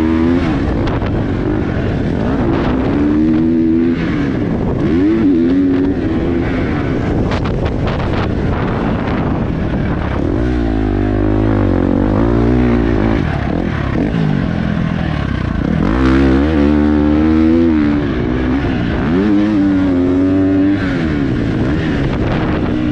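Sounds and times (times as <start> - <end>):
motocross bike engine revving: 0.0 - 22.9
wind noise: 0.0 - 22.9.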